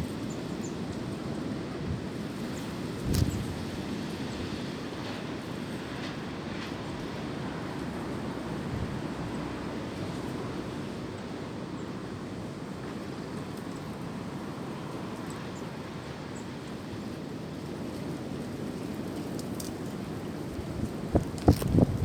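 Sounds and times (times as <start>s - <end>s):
wind through tree branches: 0.0s - 22.0s.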